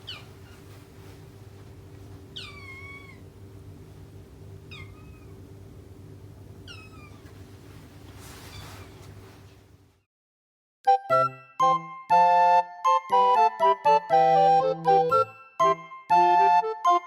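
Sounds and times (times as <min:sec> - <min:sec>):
kitten meowing: 0:00.0 - 0:00.7, 0:02.3 - 0:03.3, 0:04.7 - 0:05.4, 0:06.6 - 0:07.2
steady low hum: 0:00.0 - 0:10.0.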